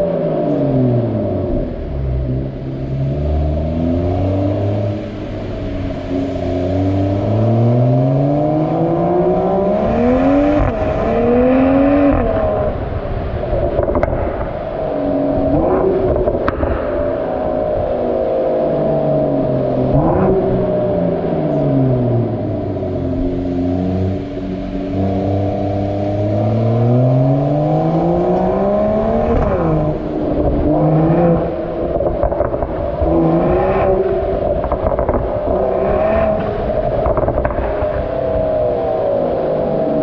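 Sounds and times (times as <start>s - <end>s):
car engine revving: 0.0s - 40.0s
exhaust crackling pops: 13.4s - 14.8s, 15.4s - 17.2s, 29.2s - 33.2s, 33.8s - 38.9s.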